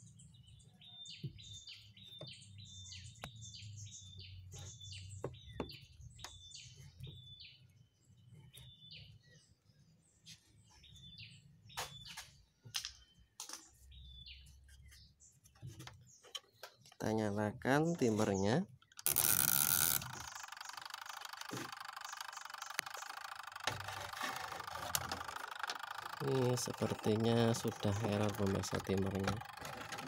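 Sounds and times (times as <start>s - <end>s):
faint small bird chirping: 0.0s - 23.4s
sharp clicks: 18.8s - 23.9s.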